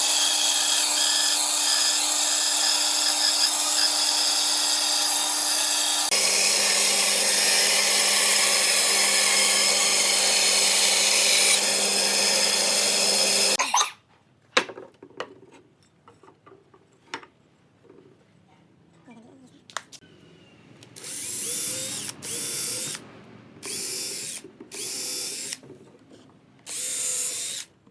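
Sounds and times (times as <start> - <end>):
power tool running on wood: 0.0 - 13.6.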